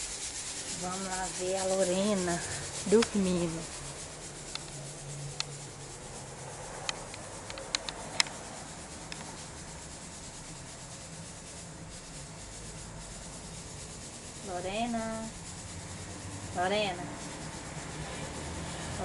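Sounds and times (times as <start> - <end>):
light rubbing and rustling: 0.0 - 19.0
steady low hum: 0.0 - 19.0
small sharp clicks: 6.8 - 8.4.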